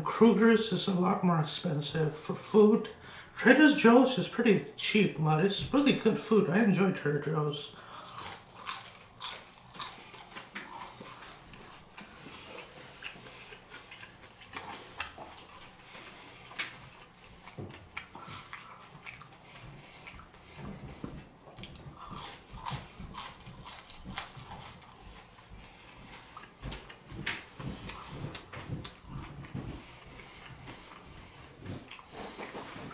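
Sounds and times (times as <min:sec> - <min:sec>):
chewing and biting food: 0:07.8 - 0:32.9.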